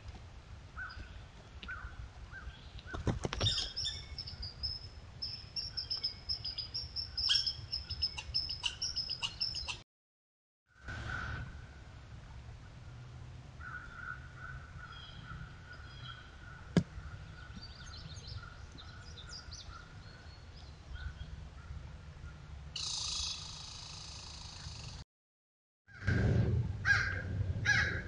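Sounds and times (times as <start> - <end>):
woodland birds chirping: 0.8 - 9.8, 13.6 - 25.0
crow cawing: 13.6 - 15.0
low steady rumble: 26.0 - 28.0.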